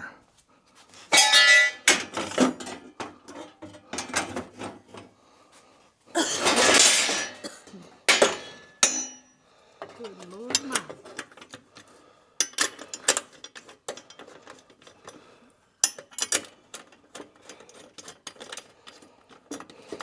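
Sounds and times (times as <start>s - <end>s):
ringing metal clang: 1.1s - 2.0s, 8.1s - 9.3s
metal parts clanking: 1.1s - 4.7s, 6.4s - 9.3s.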